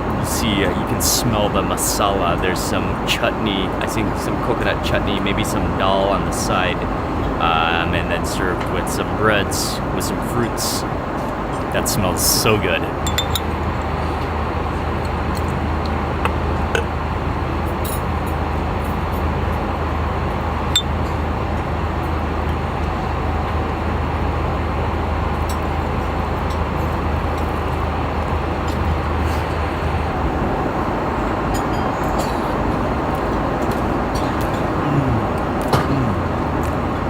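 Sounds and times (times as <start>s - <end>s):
airliner cabin hum: 0.0s - 37.0s.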